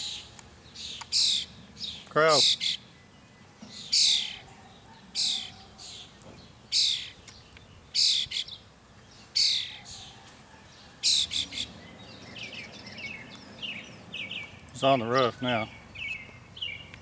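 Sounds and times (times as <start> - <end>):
fledgling bird raspy calls: 0.0 - 1.6, 2.3 - 2.9, 3.8 - 6.1, 6.7 - 7.2, 7.9 - 8.6, 9.3 - 10.2, 11.0 - 14.5.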